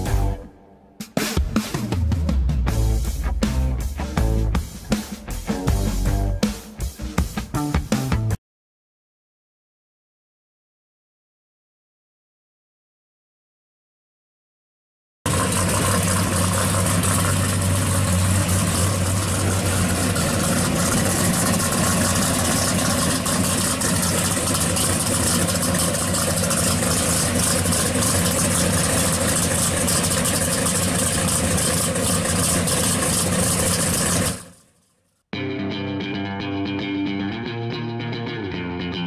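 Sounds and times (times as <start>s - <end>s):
car engine idling: 15.3s - 34.7s.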